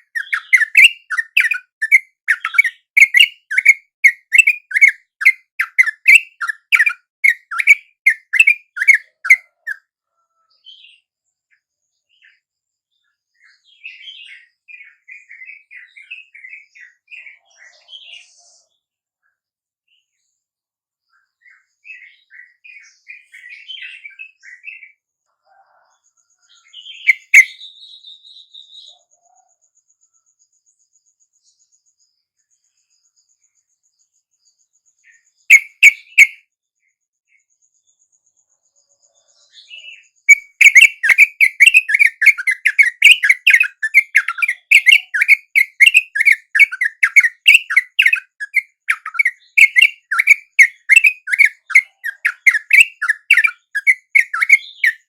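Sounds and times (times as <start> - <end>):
bird chattering run: 0.0 - 9.8, 40.3 - 55.0
bird chirps and calls: 0.0 - 20.4, 21.0 - 36.5, 38.7 - 55.0.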